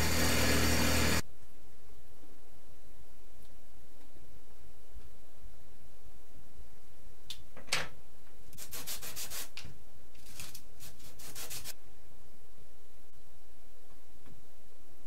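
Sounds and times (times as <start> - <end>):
sandpaper scraping: 8.6 - 9.6, 10.2 - 11.8.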